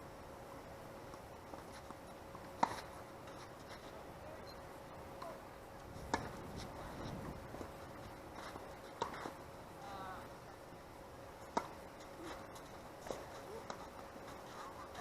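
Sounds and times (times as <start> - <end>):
low wind rumble: 4.0 - 8.8.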